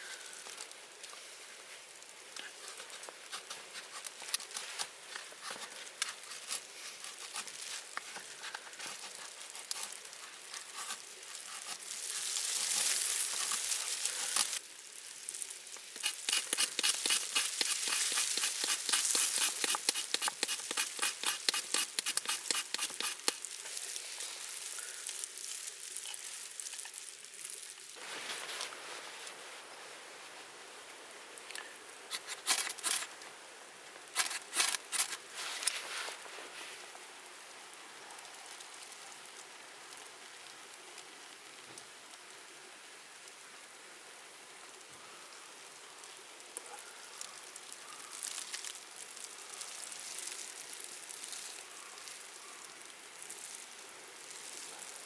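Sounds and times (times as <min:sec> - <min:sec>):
campfire crackling: 0:02.0 - 0:29.3
food sizzling: 0:06.2 - 0:28.1.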